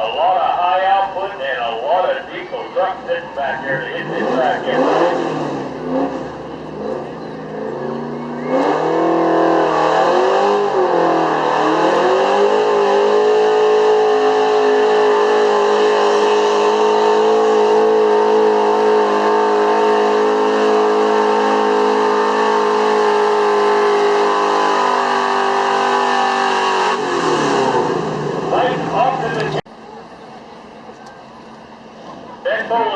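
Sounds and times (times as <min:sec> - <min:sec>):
truck engine revving: 0:00.0 - 0:32.9.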